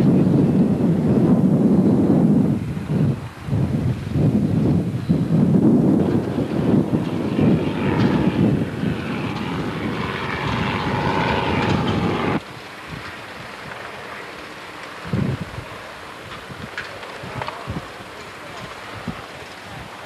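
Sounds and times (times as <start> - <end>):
wind rumble on microphone: 0.0 - 20.0
engine drone: 4.8 - 20.0.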